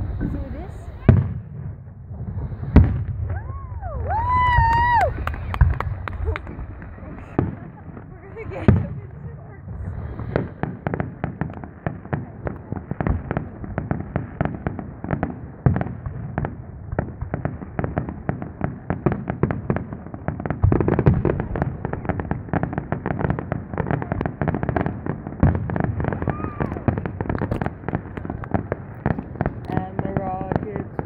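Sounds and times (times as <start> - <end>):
deep firework booms: 0.0 - 31.0
fireworks cracking and popping: 0.0 - 31.0.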